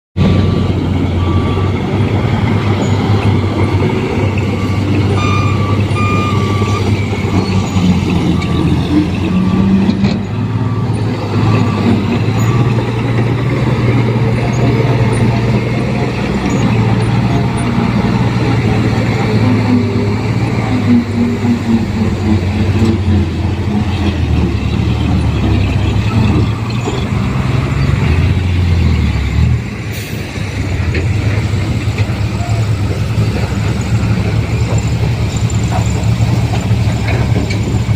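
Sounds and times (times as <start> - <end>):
diesel truck engine running: 0.2 - 37.9
short repeated beep: 2.8 - 8.8.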